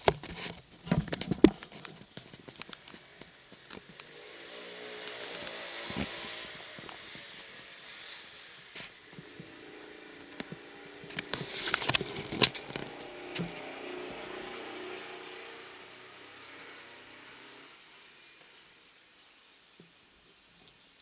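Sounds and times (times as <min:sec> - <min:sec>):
sharp clicks and crackles: 0:00.0 - 0:14.4
engine humming: 0:00.0 - 0:18.8.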